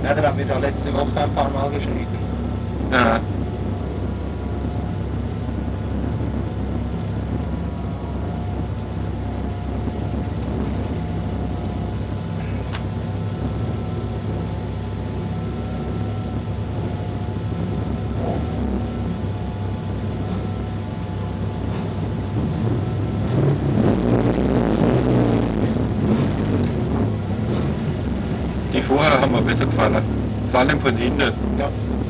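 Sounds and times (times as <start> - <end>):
car engine droning: 0.0 - 32.0.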